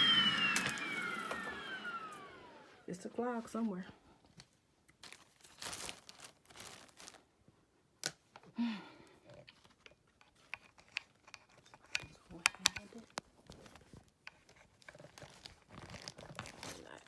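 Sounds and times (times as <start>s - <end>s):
crinkling rustles of handling: 4.2s - 7.5s, 9.4s - 17.0s.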